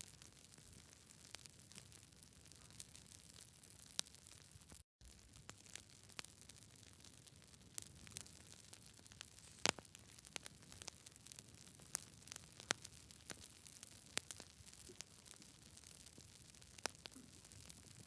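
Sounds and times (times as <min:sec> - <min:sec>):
wood popping in fire: 0:00.0 - 0:18.0
fire hissing: 0:09.2 - 0:09.9.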